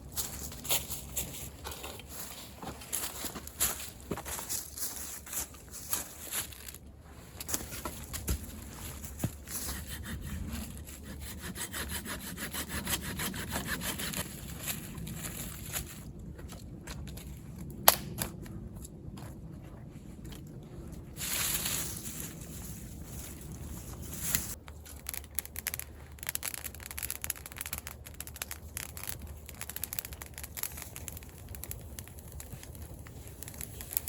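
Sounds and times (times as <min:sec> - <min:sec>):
hand saw cutting wood: 0:09.7 - 0:14.2.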